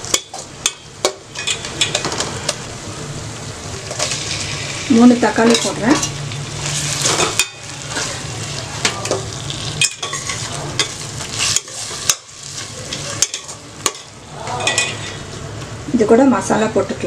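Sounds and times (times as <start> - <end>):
food sizzling in hot oil: 0.0 - 16.5
utensil scraping a pan: 3.9 - 14.0.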